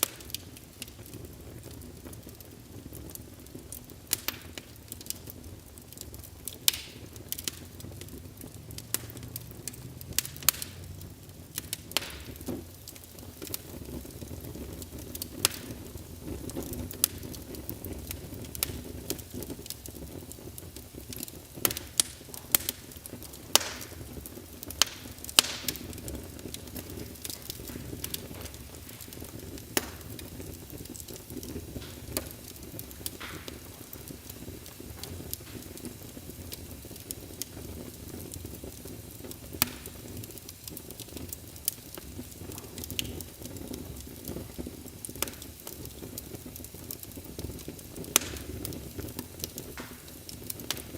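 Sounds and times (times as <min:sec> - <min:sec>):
fire flames rumbling: 0:00.0 - 0:50.9
wood fire crackling and popping: 0:00.0 - 0:50.9.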